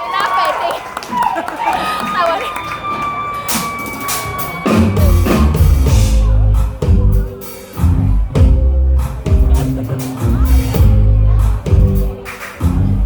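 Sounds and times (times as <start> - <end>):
live band playing: 2.1 - 13.0
drum kit strikes: 3.5 - 12.8
bass guitar: 4.6 - 13.0.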